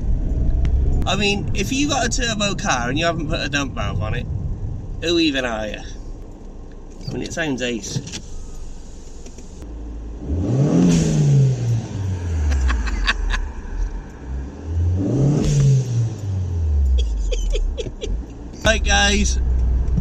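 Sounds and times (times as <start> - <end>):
turbocharged car engine revving: 9.8 - 17.6.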